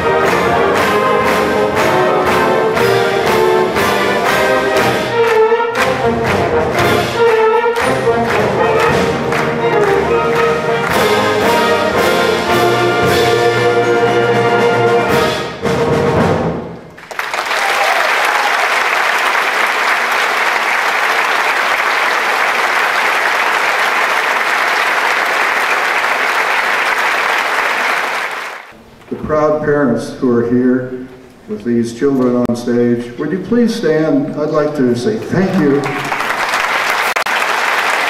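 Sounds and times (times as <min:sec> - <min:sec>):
audience applause: 0:00.0 - 0:12.3, 0:17.0 - 0:28.7, 0:35.2 - 0:38.0
brass-led concert band playing: 0:00.0 - 0:17.2.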